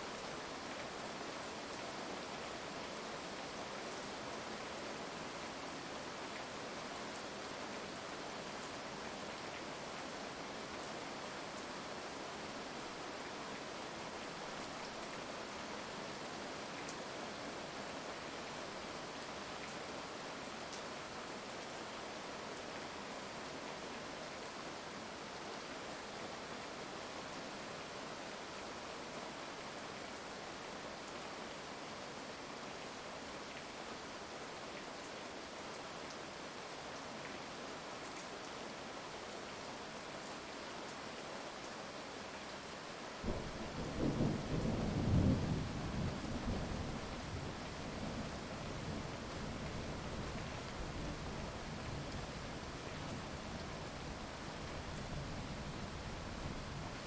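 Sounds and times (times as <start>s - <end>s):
heavy rain hiss: 42.2s - 57.0s.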